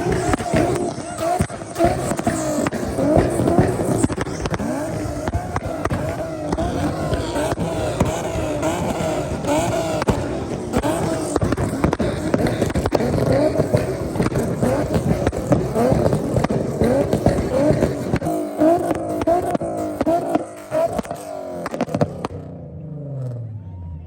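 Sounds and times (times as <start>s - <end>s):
exhaust pops crackling: 0.0s - 23.4s
car engine revving: 0.0s - 24.0s.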